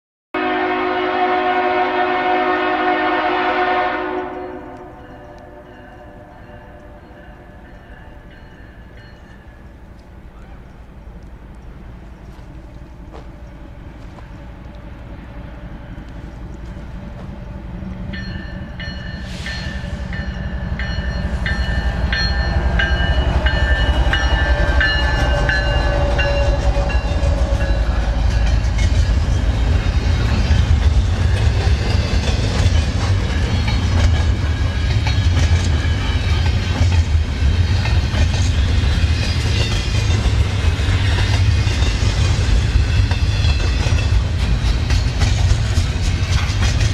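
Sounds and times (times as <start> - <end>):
train horn: 0.4 - 7.9, 21.2 - 29.2
freight train rumbling: 0.4 - 46.9
train cars clattering on rails: 18.0 - 46.9.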